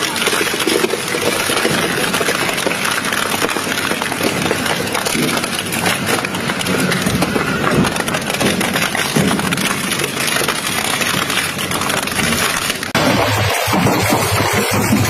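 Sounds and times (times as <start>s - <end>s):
crusher machine grinding: 0.0s - 15.0s
machine hum: 11.5s - 15.0s.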